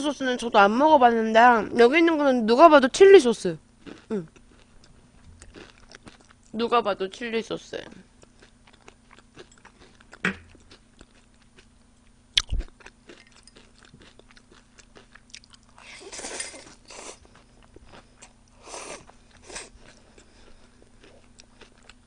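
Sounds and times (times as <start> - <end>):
chewing and biting food: 3.8 - 6.6, 7.9 - 22.0.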